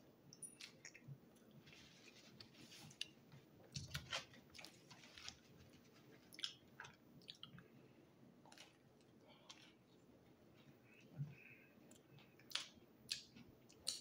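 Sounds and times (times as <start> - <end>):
person chewing food: 6.3 - 7.8, 8.4 - 14.0.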